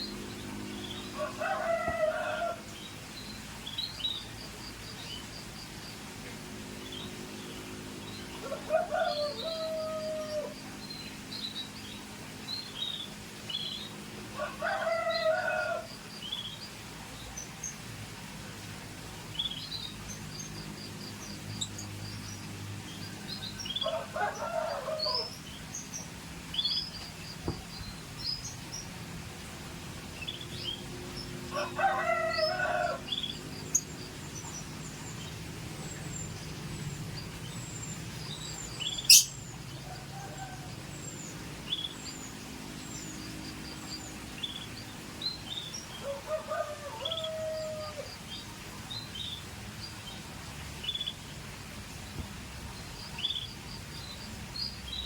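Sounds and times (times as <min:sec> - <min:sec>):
canaries chirping: 0:35.9 - 0:39.5.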